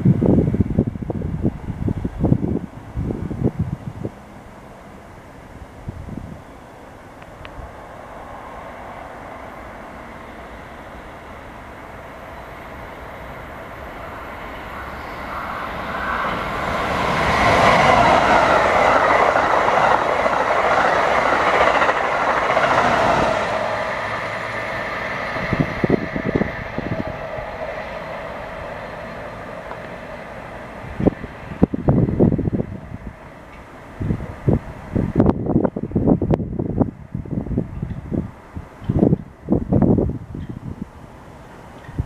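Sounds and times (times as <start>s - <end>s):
electric train passing: 0.0s - 42.0s
train wheel clacks: 16.4s - 24.2s.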